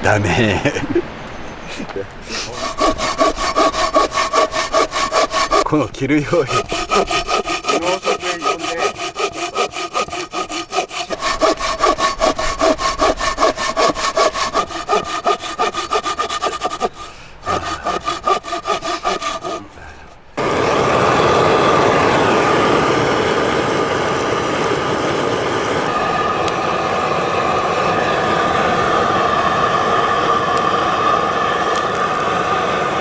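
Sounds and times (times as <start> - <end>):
hand saw cutting wood: 2.2 - 33.0
steady rushing noise: 11.0 - 33.0.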